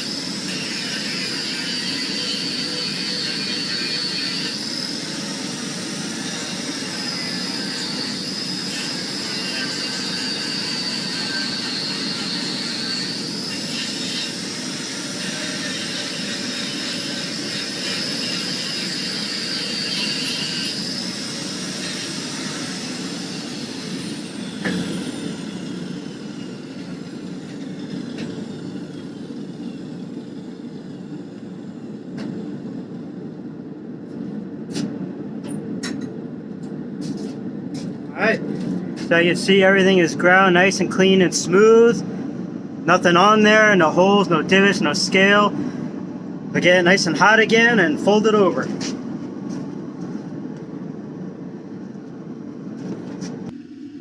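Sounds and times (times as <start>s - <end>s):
grinder whining on steel: 0.0s - 31.2s.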